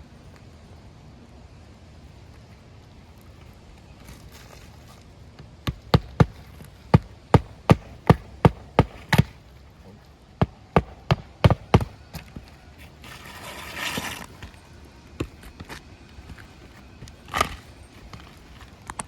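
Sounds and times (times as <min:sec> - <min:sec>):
scraping rustle: 0:02.2 - 0:19.0
hammer striking nails: 0:05.7 - 0:09.6, 0:10.4 - 0:12.5.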